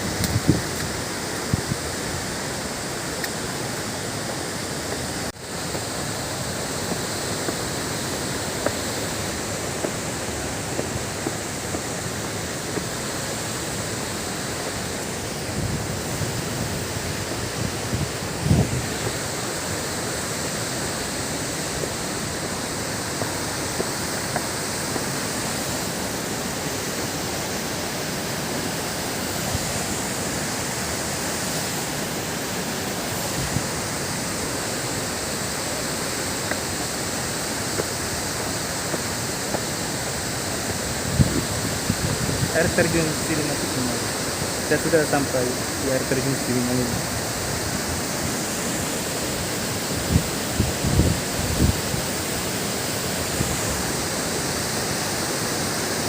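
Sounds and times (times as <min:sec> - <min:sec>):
wind thumps on microphone: 0:00.0 - 0:01.8, 0:15.5 - 0:19.2, 0:40.6 - 0:42.6, 0:50.0 - 0:52.1
waterfall rushing: 0:00.0 - 0:56.0.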